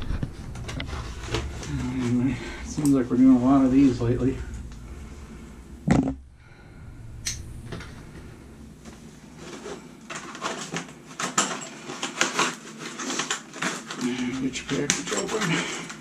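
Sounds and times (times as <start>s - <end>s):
package rustling and crinkling: 9.2s - 16.0s.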